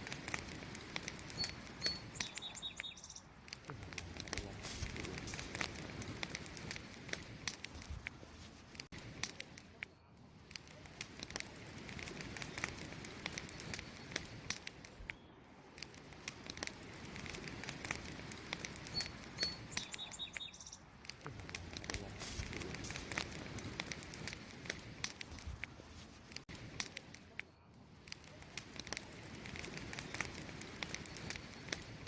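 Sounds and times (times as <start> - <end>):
wood fire crackling and popping: 0.0 - 32.0
high bird chirps: 1.3 - 3.3, 18.8 - 20.9.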